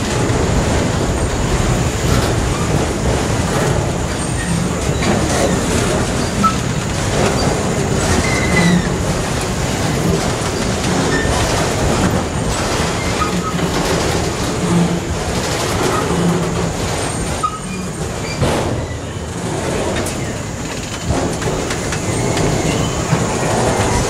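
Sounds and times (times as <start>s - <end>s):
steel wheels rumbling on rail: 0.0s - 24.0s
wheels clacking over rail joints: 0.0s - 24.0s
high wheel squeals: 4.1s - 9.0s, 10.9s - 11.6s, 17.0s - 19.5s, 21.9s - 24.0s.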